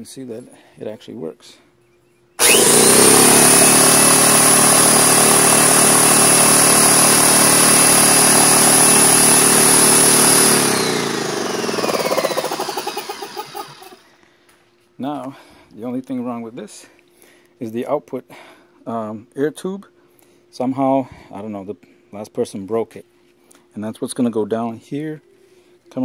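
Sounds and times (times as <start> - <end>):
air compressor whining: 2.4 - 14.2.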